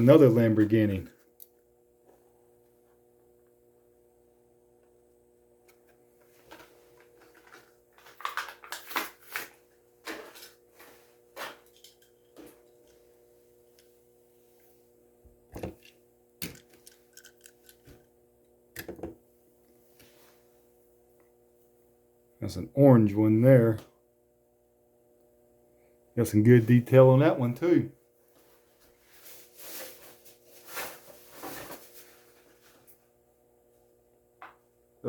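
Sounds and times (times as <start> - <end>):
faint steady hum: 0.0 - 35.0
plastic package being opened: 6.5 - 10.5.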